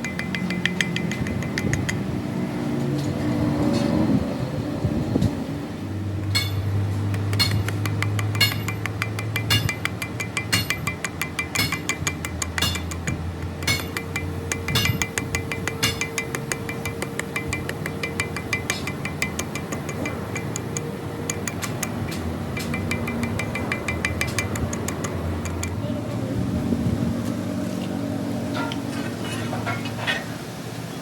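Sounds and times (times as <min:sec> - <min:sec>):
hammer striking steel: 0:00.0 - 0:02.0, 0:06.2 - 0:25.8.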